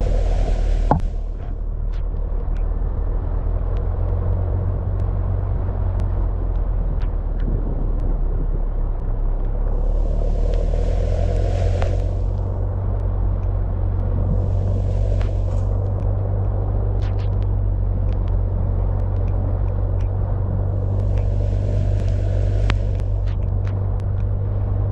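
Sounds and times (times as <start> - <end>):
hissing rush: 0.0 - 1.4, 9.7 - 12.8, 13.8 - 16.4, 20.5 - 23.5
vehicle engine and road rumble: 0.0 - 24.9.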